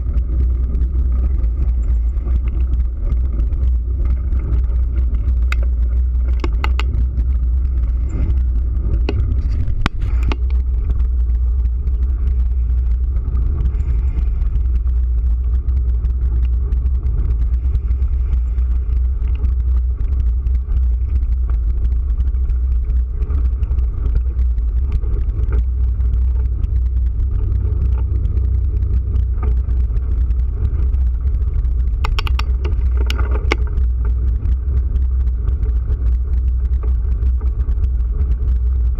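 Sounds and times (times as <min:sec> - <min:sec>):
wind buffeting microphone: 0:00.0 - 0:38.9
short clicks or rattles: 0:32.0 - 0:33.8.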